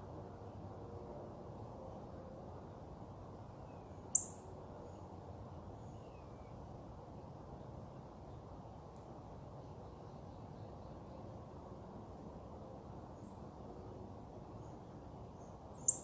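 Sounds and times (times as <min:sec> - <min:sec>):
sharp high bird chirp: 0:04.2 - 0:04.4, 0:15.8 - 0:16.0.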